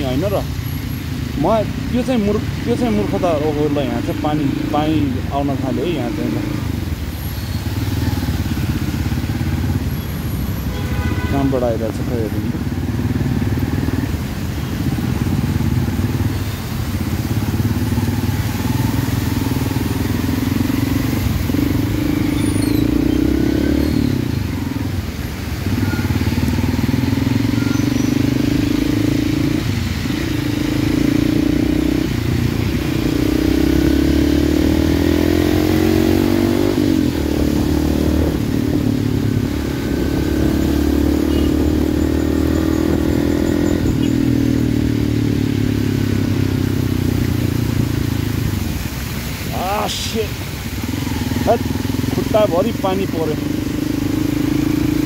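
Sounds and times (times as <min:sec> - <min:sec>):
tyre noise on wet road: 0:00.0 - 0:55.0
motorcycle engine running: 0:25.7 - 0:48.7, 0:49.5 - 0:55.0.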